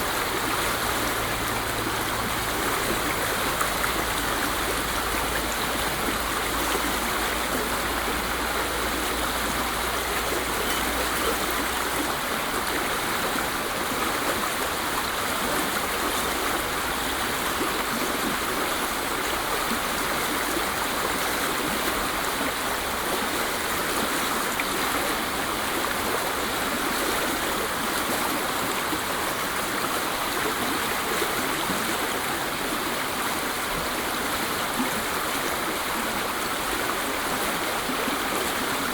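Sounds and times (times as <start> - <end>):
waterfall rushing: 0.0 - 26.7.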